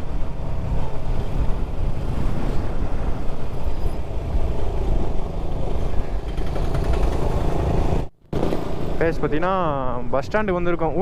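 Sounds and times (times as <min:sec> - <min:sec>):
wind rumble on microphone: 0:00.0 - 0:11.0
motorcycle engine: 0:06.0 - 0:09.1.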